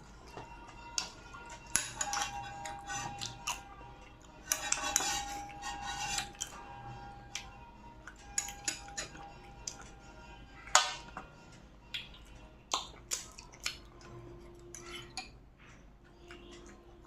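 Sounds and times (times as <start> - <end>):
tableware clinking and scraping: 0.2 - 3.7, 4.4 - 6.6, 8.1 - 10.0.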